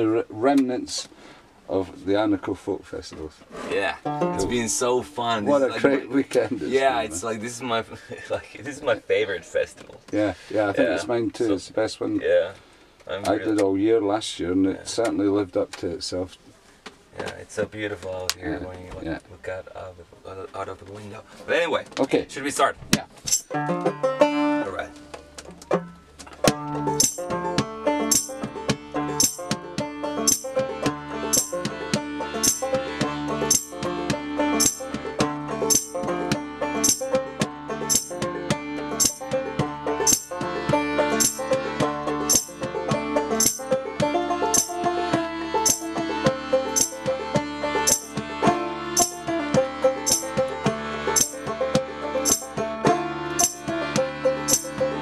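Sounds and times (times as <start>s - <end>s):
banjo picking: 0.0s - 16.4s, 20.6s - 55.0s
crisp percussion hits: 23.0s - 23.6s, 25.2s - 48.4s, 49.0s - 49.3s, 50.0s - 55.0s.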